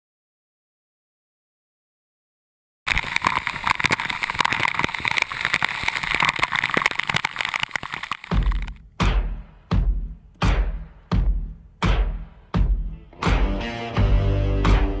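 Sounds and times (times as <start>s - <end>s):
rushing whitewater splashing: 2.9s - 8.7s
slow heavy drum beat music: 8.8s - 15.0s.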